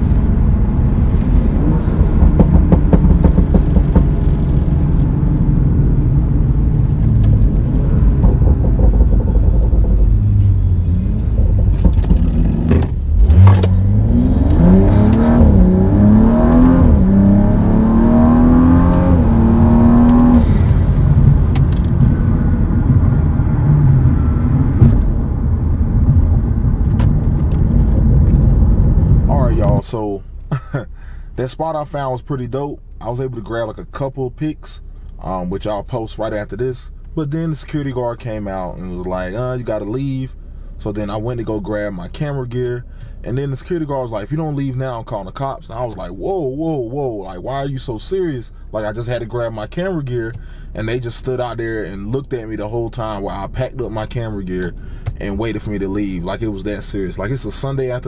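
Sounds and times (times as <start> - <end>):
car engine accelerating through gears: 0.0 - 29.8.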